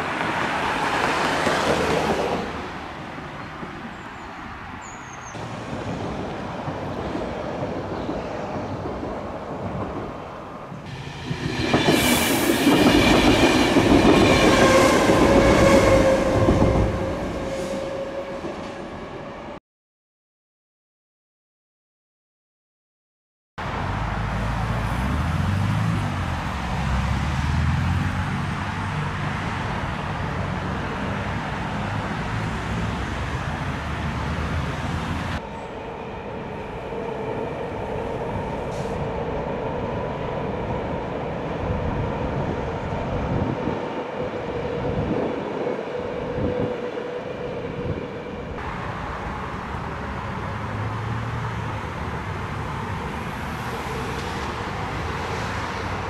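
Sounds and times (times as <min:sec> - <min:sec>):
train wheels rumbling on bridge: 0:00.0 - 0:02.7, 0:05.4 - 0:19.1.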